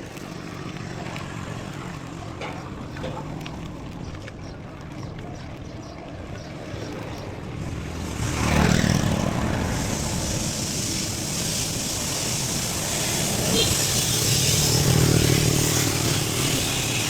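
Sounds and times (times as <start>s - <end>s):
bike rolling on trail: 0.0s - 17.0s
wind rushing over microphone: 6.4s - 17.0s.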